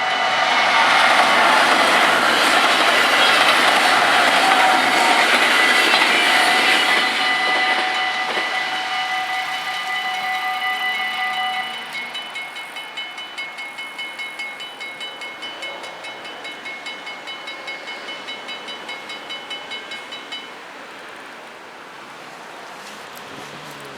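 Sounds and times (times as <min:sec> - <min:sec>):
level crossing bells ringing: 0:00.0 - 0:21.1
electric train rushing past: 0:00.0 - 0:23.9.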